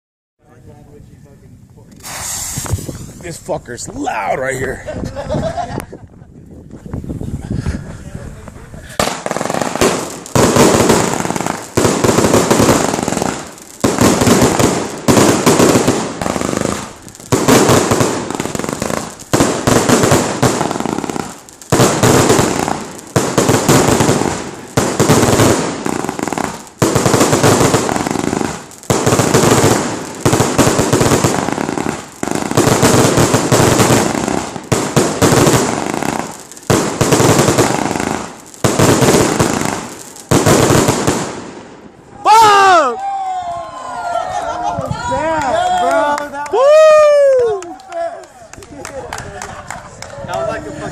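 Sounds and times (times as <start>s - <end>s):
firework volleys crackling: 1.9s - 3.9s, 8.4s - 42.3s.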